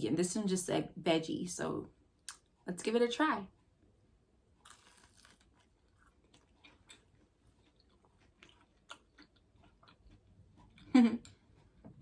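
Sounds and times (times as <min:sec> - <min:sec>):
soft chewing with wet clicks: 0:02.2 - 0:02.6, 0:04.6 - 0:12.0
crunchy bite: 0:04.6 - 0:07.1.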